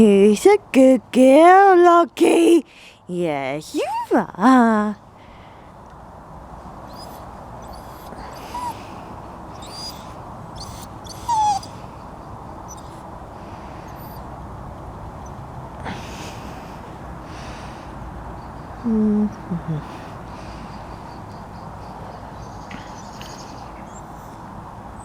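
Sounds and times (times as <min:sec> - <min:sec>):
dog whimpering: 0:06.9 - 0:09.0, 0:09.6 - 0:11.8, 0:12.7 - 0:13.0, 0:13.9 - 0:14.2, 0:19.0 - 0:20.0, 0:23.9 - 0:24.4.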